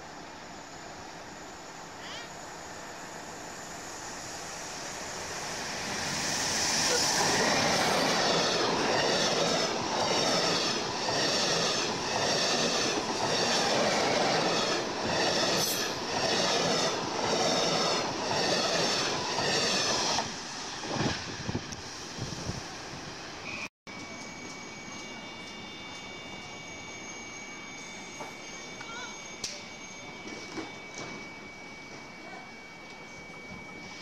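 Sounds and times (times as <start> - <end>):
train wheels rumbling on rails: 3.0 - 27.0.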